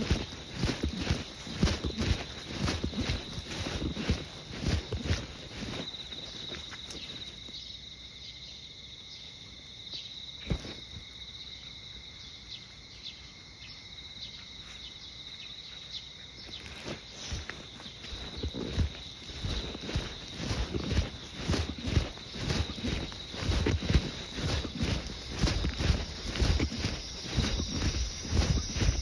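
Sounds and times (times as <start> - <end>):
footsteps on pavement: 0.0 - 7.5, 16.5 - 29.0
insects trilling: 0.0 - 29.0.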